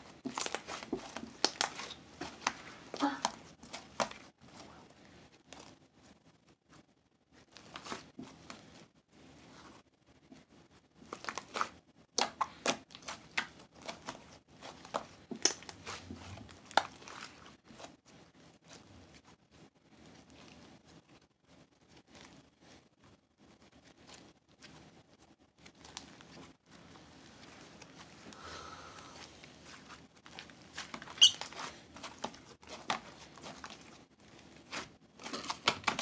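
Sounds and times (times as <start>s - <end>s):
crinkling and rustling with clicks: 0.0s - 36.0s.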